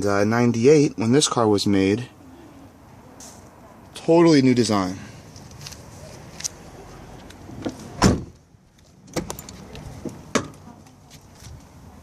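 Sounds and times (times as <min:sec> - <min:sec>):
car door shutting: 0:07.6 - 0:08.4.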